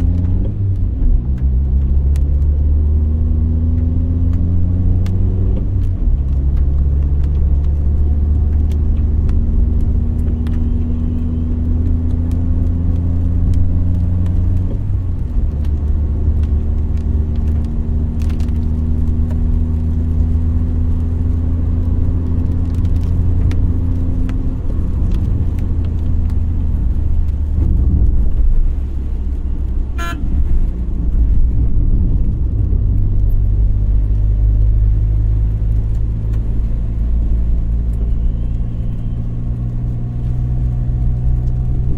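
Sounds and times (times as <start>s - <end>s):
car engine drone: 0.0s - 41.9s
road rumble: 0.0s - 41.9s.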